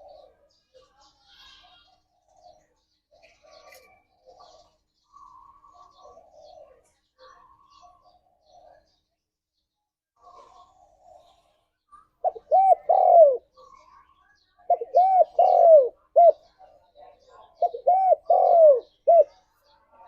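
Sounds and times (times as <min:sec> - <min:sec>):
dove cooing: 0:00.0 - 0:00.6, 0:04.2 - 0:06.8, 0:12.2 - 0:13.9, 0:14.7 - 0:16.5, 0:17.5 - 0:19.4.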